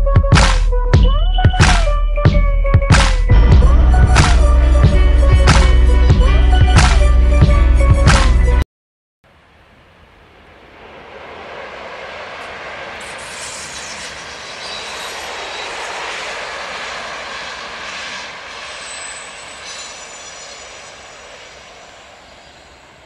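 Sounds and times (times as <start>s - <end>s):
passing train rushing: 9.3s - 23.0s
high-pitched squeals: 10.2s - 23.0s.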